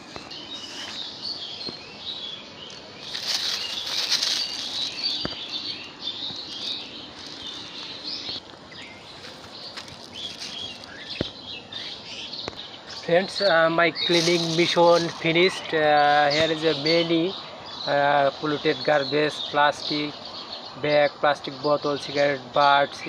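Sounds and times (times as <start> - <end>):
small birds chirping: 0.0 - 23.0
handling rustle: 3.0 - 11.2, 14.1 - 15.3.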